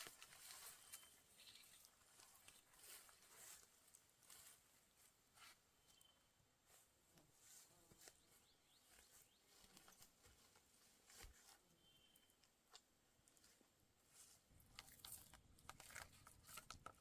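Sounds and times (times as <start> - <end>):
small ticks and rustles: 0.0 - 17.0.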